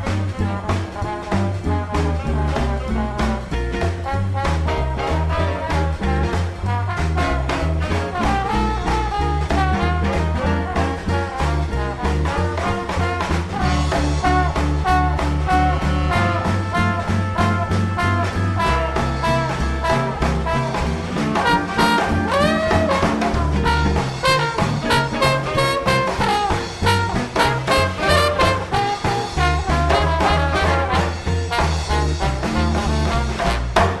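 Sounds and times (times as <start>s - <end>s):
drums keeping a beat: 0.0s - 34.0s
horn section playing melody: 0.0s - 34.0s
upright bass walking: 0.0s - 34.0s.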